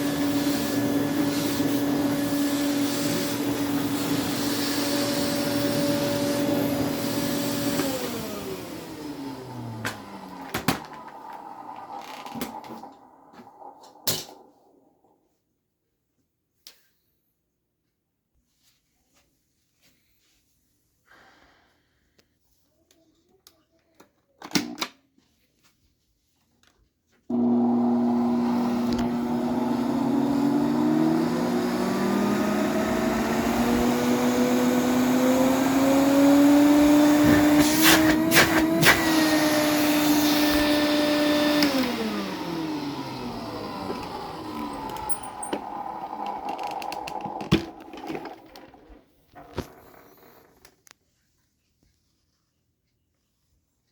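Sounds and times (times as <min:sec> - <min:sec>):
vacuum cleaner motor whine: 0:00.0 - 0:15.2, 0:27.3 - 0:50.7.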